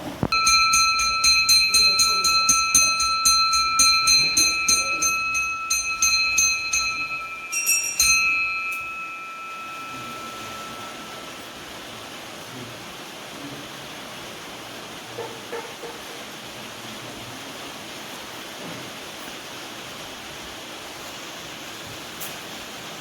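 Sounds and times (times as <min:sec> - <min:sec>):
hand bell ringing rapidly: 0:00.3 - 0:11.6.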